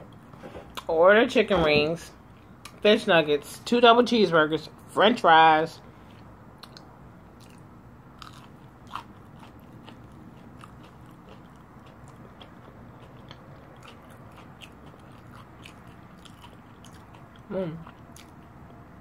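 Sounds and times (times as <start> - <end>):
person chewing crunchy food: 6.0 - 19.0.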